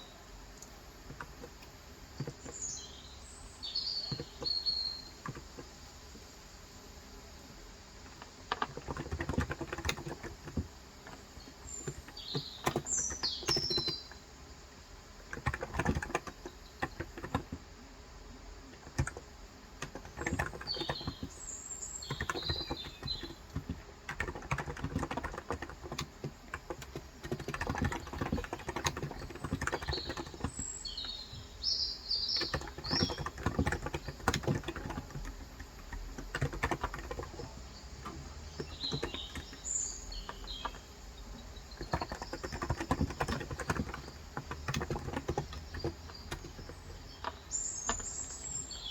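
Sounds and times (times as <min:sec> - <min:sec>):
birds chirping: 0:00.0 - 0:06.4, 0:08.0 - 0:48.9
keyboard typing: 0:00.6 - 0:02.7, 0:04.0 - 0:05.7, 0:08.1 - 0:14.2, 0:15.3 - 0:17.6, 0:18.6 - 0:21.4, 0:22.0 - 0:48.9.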